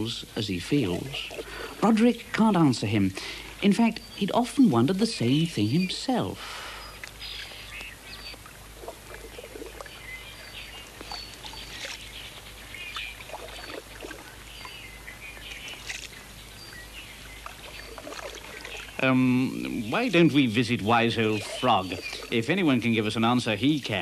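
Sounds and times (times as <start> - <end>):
faint hiss: 0.0 - 13.1, 18.8 - 24.0
birds chirping: 0.0 - 24.0.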